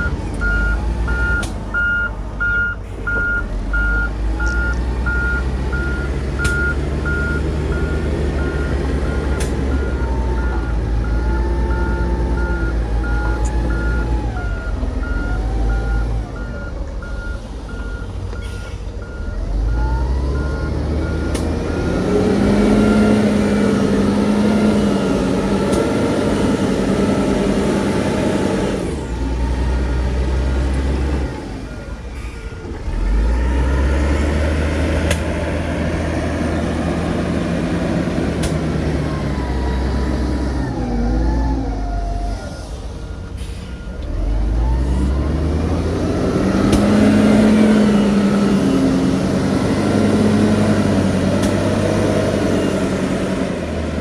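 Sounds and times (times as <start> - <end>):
reversing alarm beeping: 0.0 - 29.0
diesel machinery engines revving: 0.0 - 54.0.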